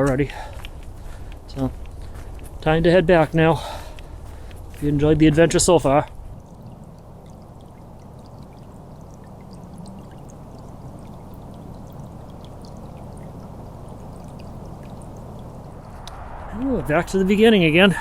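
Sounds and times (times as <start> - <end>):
distant highway traffic: 0.0 - 18.0
faint ticks: 0.1 - 2.6, 3.6 - 4.9.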